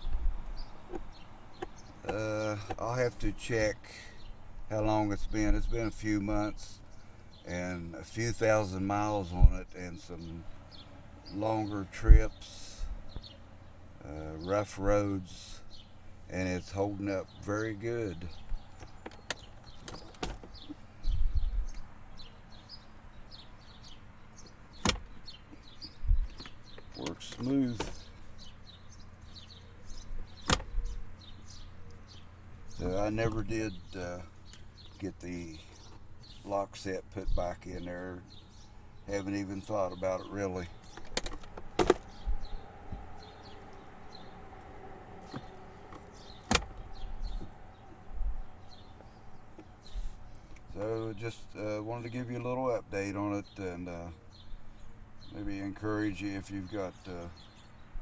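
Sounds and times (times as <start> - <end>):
small birds chirping: 0.0 - 58.0
glove box latch click: 0.9 - 2.8, 18.5 - 20.8, 24.8 - 25.3, 26.3 - 28.1, 30.4 - 30.9, 40.8 - 42.3, 45.2 - 47.6.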